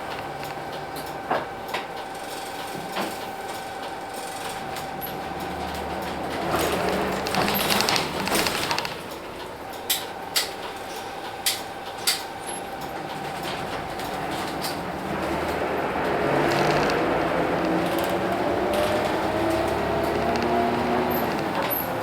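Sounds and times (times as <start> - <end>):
bus diesel engine running: 0.0 - 22.0
sharp clicks: 16.3 - 22.0.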